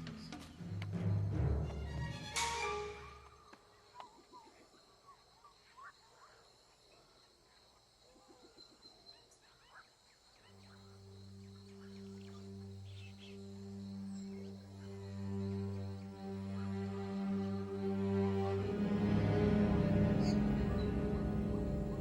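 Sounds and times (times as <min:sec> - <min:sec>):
high insect whine: 0:00.1 - 0:22.0
low music drone: 0:11.2 - 0:22.0.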